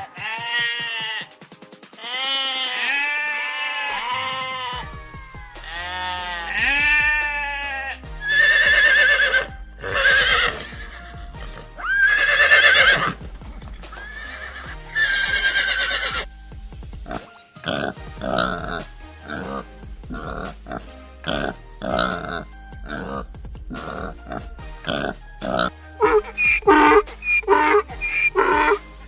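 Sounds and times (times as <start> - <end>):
background music: 0.0 - 29.0
farm animal calls: 5.6 - 13.2, 14.0 - 16.2, 17.1 - 28.8.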